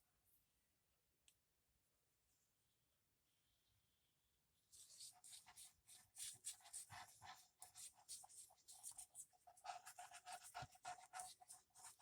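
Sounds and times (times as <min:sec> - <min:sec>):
glue rubbed onto paper: 0:04.7 - 0:12.0.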